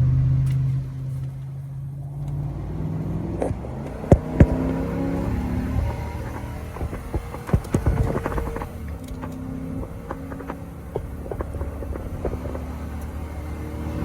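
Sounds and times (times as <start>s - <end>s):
truck engine running: 0.0s - 14.0s
sharp clicks and knocks: 3.3s - 14.0s
rattles: 3.4s - 14.0s.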